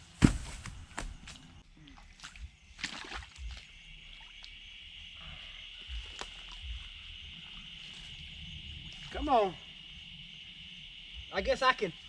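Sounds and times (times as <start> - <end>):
low thumps: 0.0 - 1.6
insects droning: 0.0 - 12.0.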